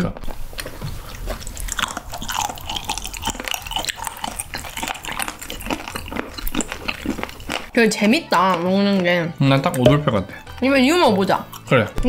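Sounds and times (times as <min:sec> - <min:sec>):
chewing crunchy cartilage: 0:00.2 - 0:12.0.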